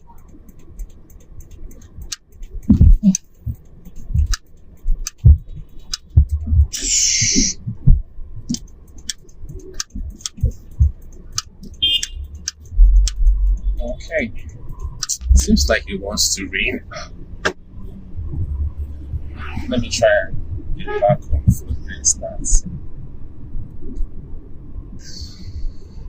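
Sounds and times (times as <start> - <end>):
clicks and knocks in a car: 0.0 - 6.7, 7.6 - 15.6.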